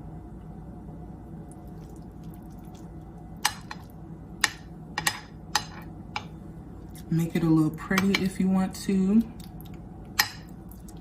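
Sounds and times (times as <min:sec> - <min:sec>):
steady low hum: 0:00.0 - 0:11.0
soft squish of pasta: 0:01.4 - 0:03.2, 0:10.6 - 0:11.0.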